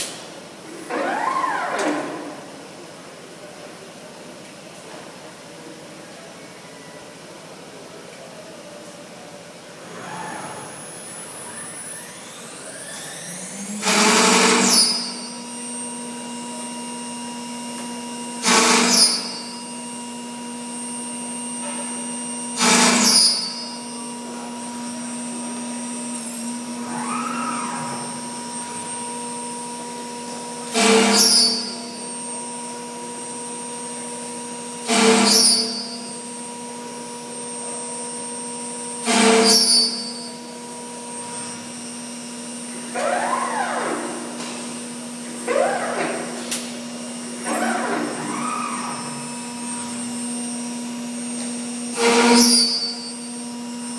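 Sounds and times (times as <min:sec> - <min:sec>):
machine spindle hum: 0:09.8 - 0:52.4
loud machining bursts: 0:10.0 - 0:16.4, 0:18.2 - 0:25.7, 0:26.4 - 0:50.4, 0:51.2 - 0:53.9.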